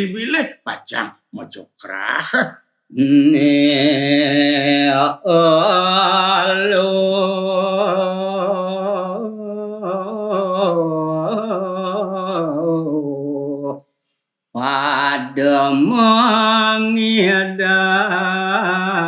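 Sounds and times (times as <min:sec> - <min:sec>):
man singing solo: 0:02.9 - 0:13.8.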